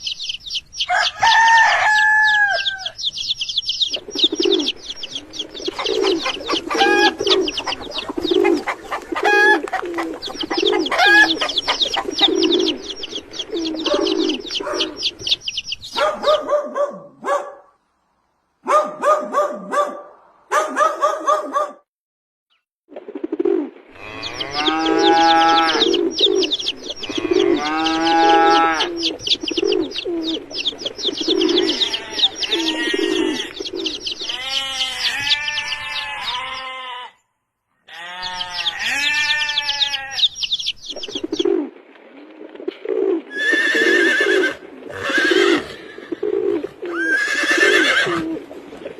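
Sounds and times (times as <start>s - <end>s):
high bird chirping: 0.0s - 16.9s, 24.0s - 36.8s, 38.2s - 41.5s
low cooing calls: 3.8s - 17.1s, 23.0s - 36.9s, 38.2s - 48.9s
drawn-out animal calls: 4.0s - 16.9s, 23.9s - 37.2s, 37.8s - 40.6s, 43.2s - 48.6s.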